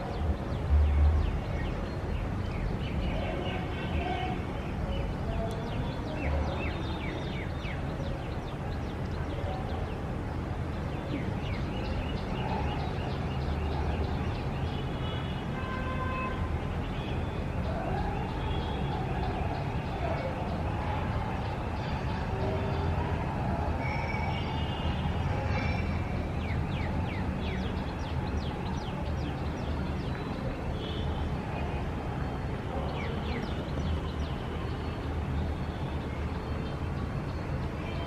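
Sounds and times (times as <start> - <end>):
low rumble of traffic: 0.0 - 38.0.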